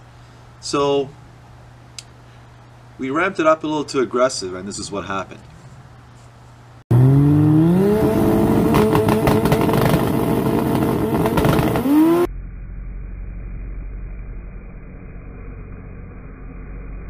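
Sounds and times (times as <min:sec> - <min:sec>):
car engine revving with crackling: 0:06.9 - 0:12.3.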